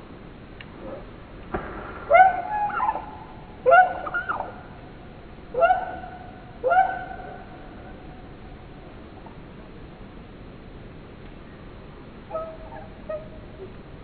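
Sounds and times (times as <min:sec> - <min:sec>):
bird calling: 0:02.1 - 0:04.8, 0:05.5 - 0:08.0, 0:12.3 - 0:13.8.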